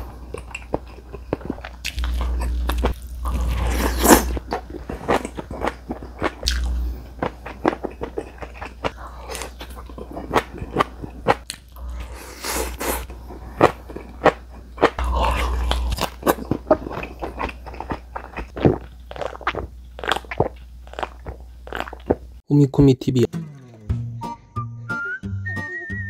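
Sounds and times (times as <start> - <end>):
person chewing crunchy food: 0.0 - 22.4.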